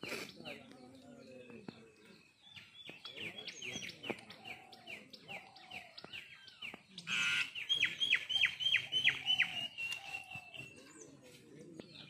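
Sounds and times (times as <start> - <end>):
birds chirping: 0.0 - 12.0
harsh bird call: 7.0 - 10.8.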